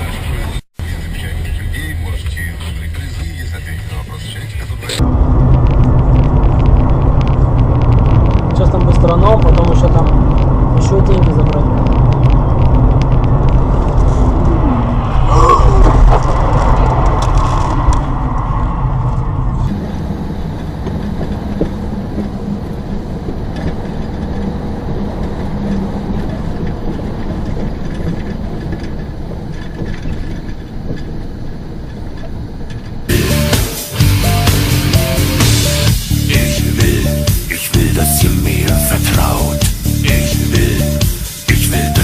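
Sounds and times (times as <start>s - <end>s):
car road and engine rumble: 0.0s - 42.0s
music: 33.1s - 42.0s.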